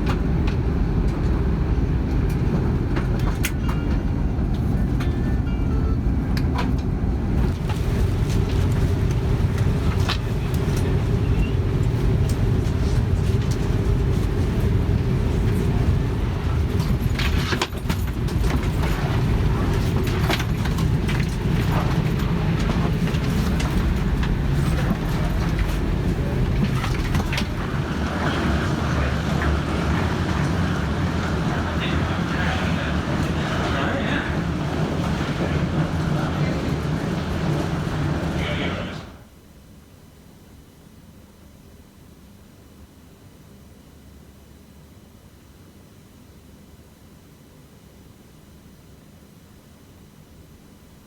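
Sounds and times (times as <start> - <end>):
vehicle rumble from inside: 0.0 - 39.2.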